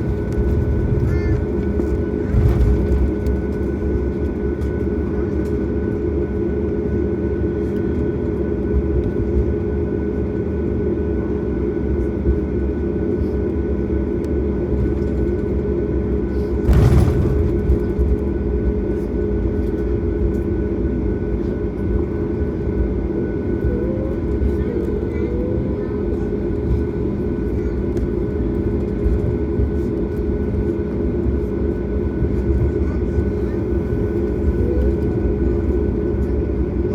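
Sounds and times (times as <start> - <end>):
airplane cabin engine rumble: 0.0 - 36.9.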